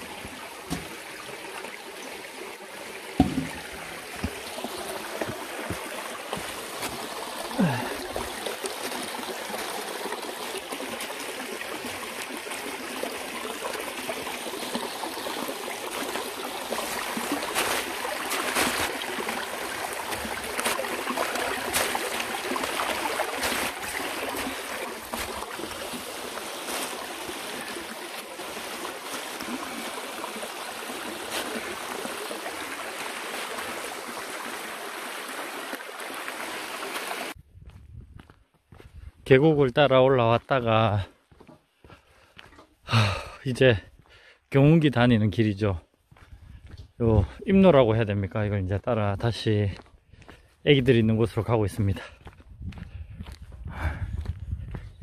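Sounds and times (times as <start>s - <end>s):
stream running over rocks: 0.0s - 37.4s
sharp knocks: 3.2s - 4.4s.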